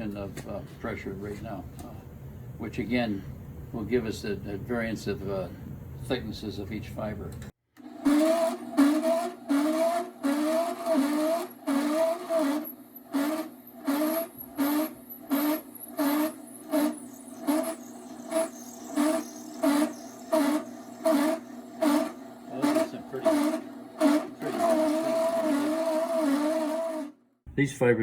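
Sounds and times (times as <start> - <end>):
grinder machine humming with pulse: 7.8 - 27.2.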